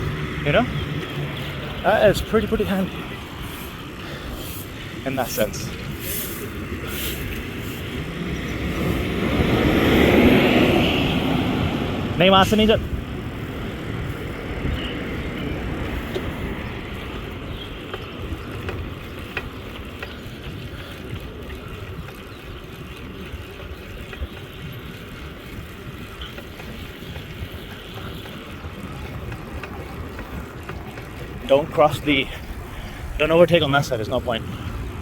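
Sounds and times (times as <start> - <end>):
street noise: 0.0 - 35.0
wind rush on microphone: 0.0 - 35.0
faint clicks: 17.9 - 25.0.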